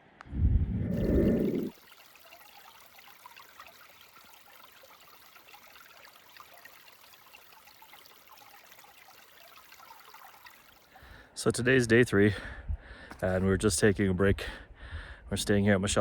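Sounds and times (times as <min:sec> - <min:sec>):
stream babbling: 0:00.9 - 0:11.2.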